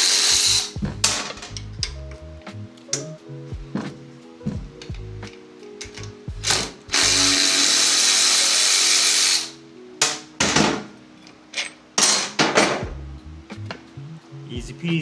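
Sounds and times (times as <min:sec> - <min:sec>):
power ratchet running: 0:00.0 - 0:00.8, 0:06.4 - 0:09.6
parts knocking: 0:00.3 - 0:02.2, 0:10.0 - 0:13.9.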